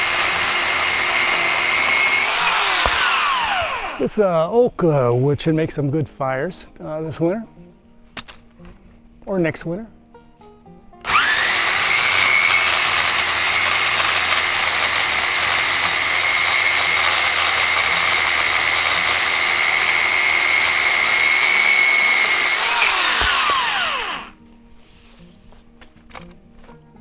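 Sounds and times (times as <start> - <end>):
electric chainsaw whining: 0.0 - 4.2, 11.0 - 24.4.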